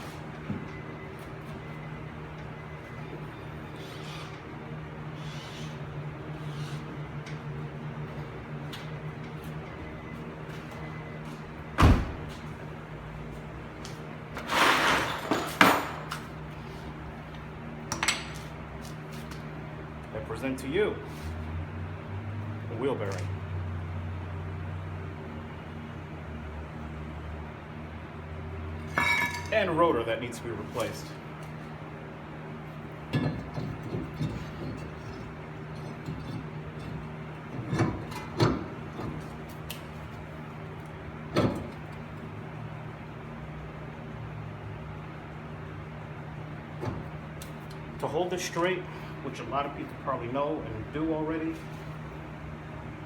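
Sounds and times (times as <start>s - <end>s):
metal parts clanking: 14.5s - 16.2s, 28.9s - 29.6s.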